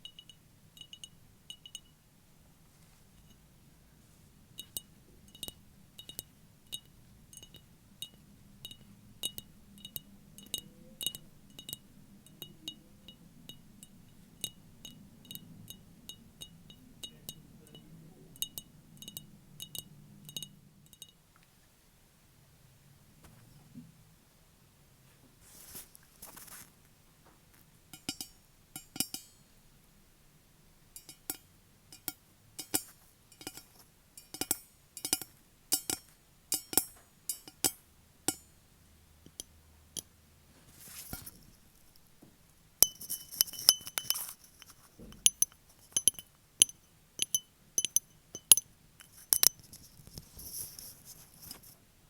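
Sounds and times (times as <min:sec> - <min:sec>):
fingernails tapping on hard object: 0:42.8 - 0:49.6
scratchy rubbing: 0:49.0 - 0:51.8.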